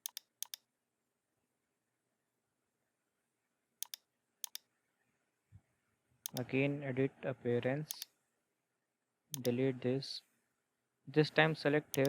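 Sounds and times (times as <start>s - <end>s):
computer mouse clicking: 0.0s - 0.6s, 3.8s - 4.6s, 6.3s - 6.5s, 7.9s - 8.1s, 9.4s - 9.6s.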